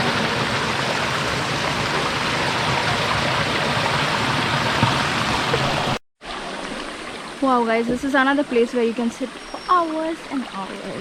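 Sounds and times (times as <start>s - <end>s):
stream rushing over rocks: 0.0s - 8.2s.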